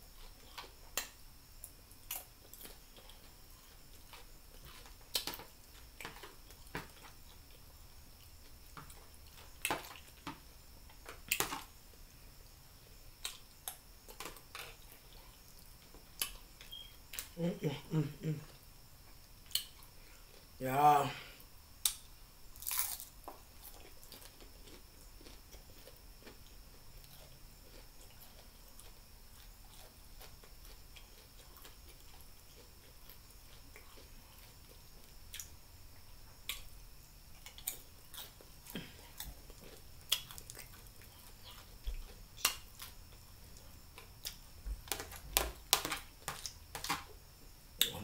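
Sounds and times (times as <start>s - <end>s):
quiet chewing: 22.7s - 36.7s, 37.3s - 47.0s.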